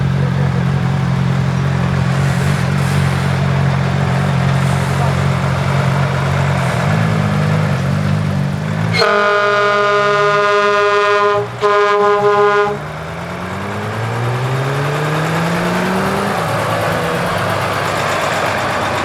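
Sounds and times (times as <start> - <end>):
truck engine rumbling: 0.0 - 19.0
truck air horn: 0.6 - 13.4.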